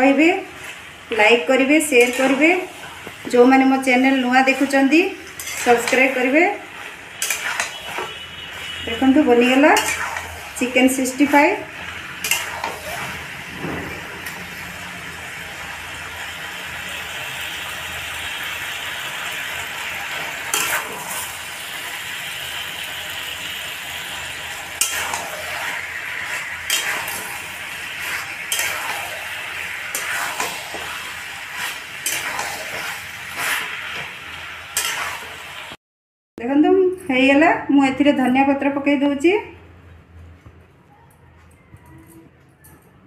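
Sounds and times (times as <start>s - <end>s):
chicken sizzling in a pan: 0.0s - 13.5s, 14.2s - 35.8s
spatula scraping metal pan: 1.9s - 3.1s, 3.9s - 11.4s, 12.2s - 13.2s, 20.4s - 21.3s, 24.8s - 35.3s.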